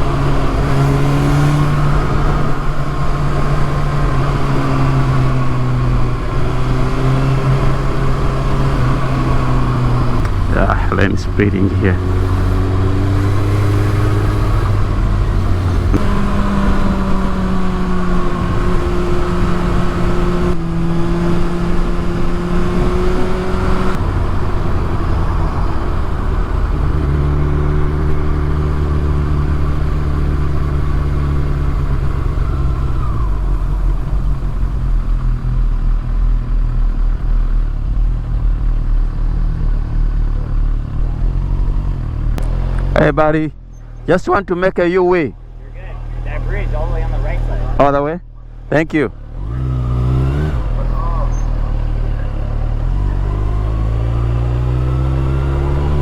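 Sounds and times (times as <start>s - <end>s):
motorcycle engine running: 0.0s - 44.1s.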